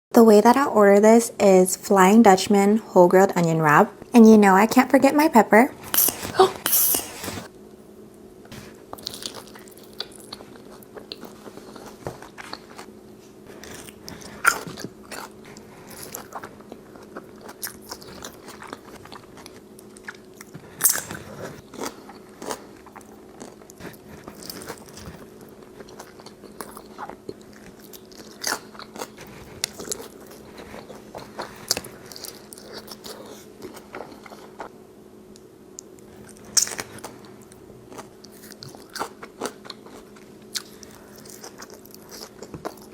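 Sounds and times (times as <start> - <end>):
faint steady hum: 0.1 - 42.9
crunchy chewing: 8.6 - 34.7, 35.8 - 42.9.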